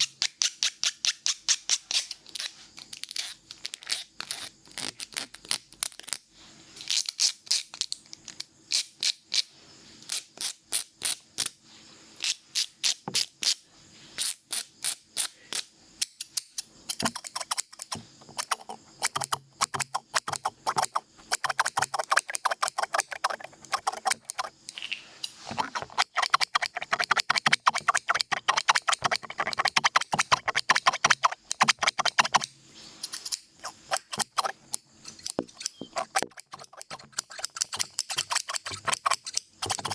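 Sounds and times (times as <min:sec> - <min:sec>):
scissors snipping: 0:16.9 - 0:24.8, 0:25.5 - 0:32.5, 0:33.1 - 0:39.9.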